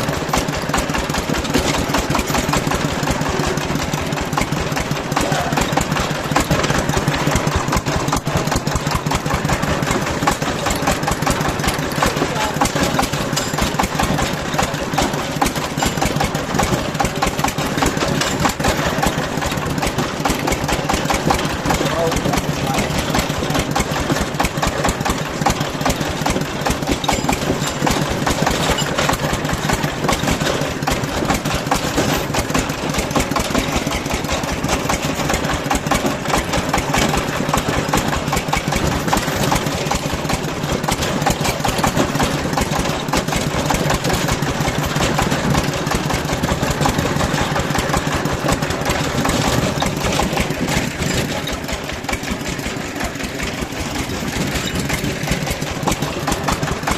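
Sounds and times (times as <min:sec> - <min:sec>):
small engine running: 0:00.0 - 0:56.9.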